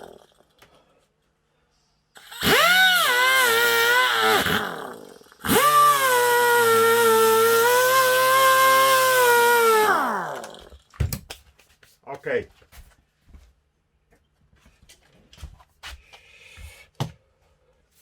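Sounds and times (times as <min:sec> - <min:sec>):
power tool whining: 0:00.0 - 0:00.4, 0:02.2 - 0:10.8.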